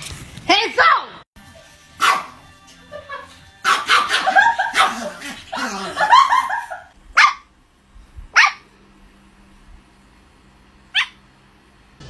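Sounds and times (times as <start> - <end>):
dog barking: 2.0 - 2.4, 3.1 - 6.5, 7.2 - 7.5, 8.3 - 8.7, 10.9 - 11.2.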